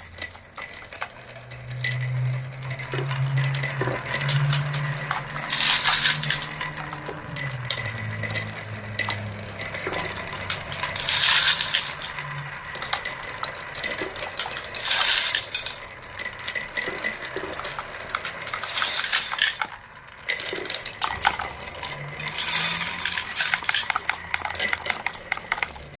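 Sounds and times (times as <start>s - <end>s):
marbles clattering along marble run: 0.0s - 26.0s.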